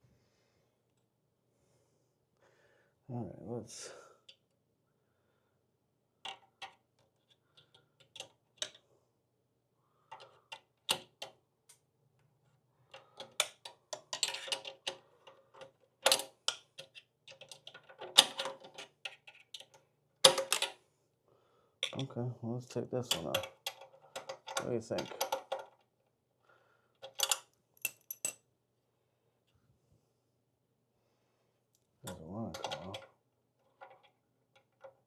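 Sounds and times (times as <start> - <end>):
tools and parts clattering: 12.9 - 20.8, 23.1 - 25.8, 27.0 - 28.4.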